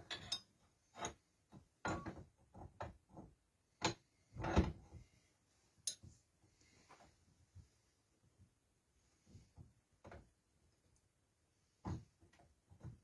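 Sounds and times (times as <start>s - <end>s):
objects knocking and clunking: 0.0s - 5.2s, 9.2s - 10.5s, 11.6s - 13.0s.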